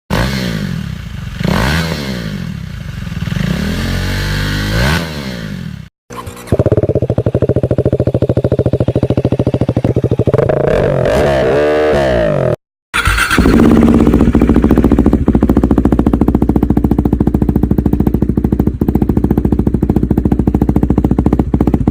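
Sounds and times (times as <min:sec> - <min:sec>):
motorcycle engine revving: 0:00.1 - 0:21.9
motorcycle engine idling: 0:02.5 - 0:03.4, 0:06.2 - 0:10.8, 0:13.0 - 0:21.9.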